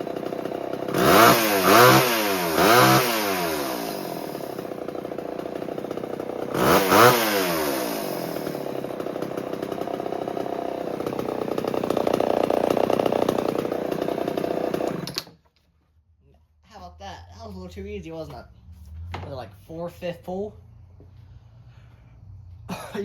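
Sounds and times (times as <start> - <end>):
chainsaw engine idling: 0.0 - 15.2.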